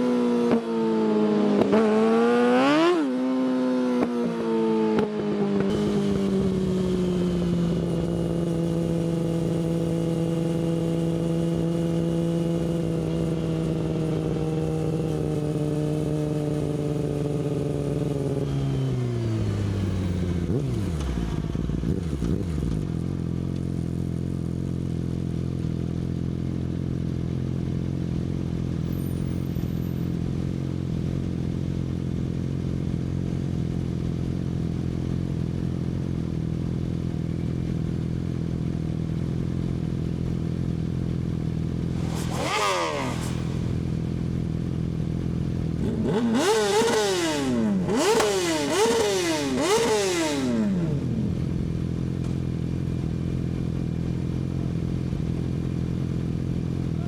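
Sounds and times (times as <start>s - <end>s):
sport bike engine running: 5.4s - 57.0s
sharp throttle revs: 41.8s - 44.5s, 45.8s - 51.2s.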